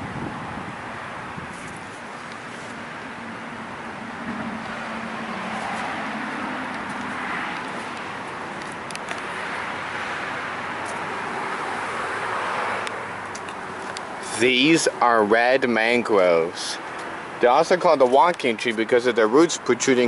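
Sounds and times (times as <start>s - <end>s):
road traffic noise: 0.0s - 20.0s
vehicles passing: 0.0s - 20.0s.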